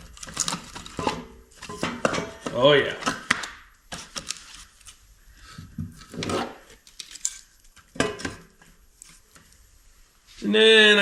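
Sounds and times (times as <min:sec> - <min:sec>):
firewood knocking and scraping: 0:00.0 - 0:04.8.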